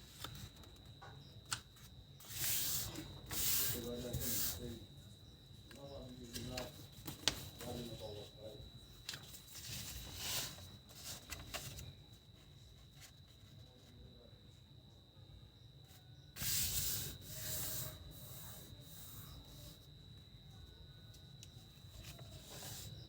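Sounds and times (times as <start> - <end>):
paper rustling and creasing: 0.0 - 0.9, 6.1 - 8.3, 9.0 - 13.6, 21.9 - 23.0
faint high whine: 0.0 - 23.0.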